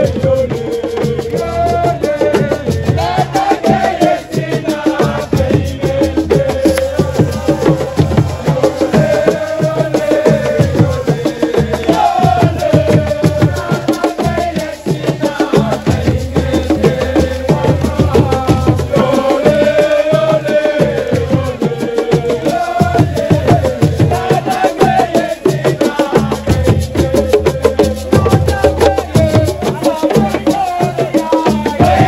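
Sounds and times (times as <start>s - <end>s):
fast dense drumming: 0.0s - 32.0s
voices singing: 0.0s - 32.0s
wood block clicks: 6.7s - 6.9s.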